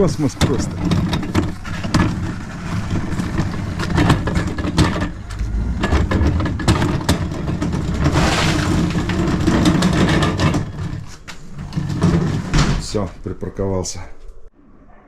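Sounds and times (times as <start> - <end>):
electric motor humming: 0.0 - 10.4
cart rattling and knocking: 0.0 - 13.2.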